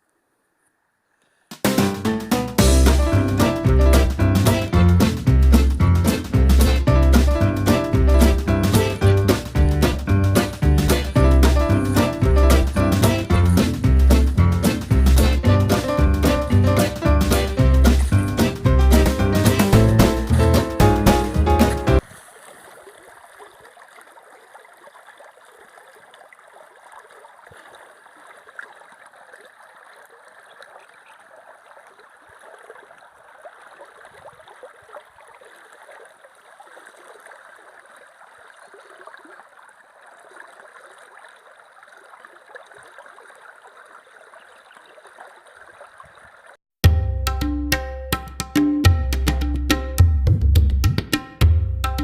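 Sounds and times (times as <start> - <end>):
river water flowing: 2.0 - 46.6.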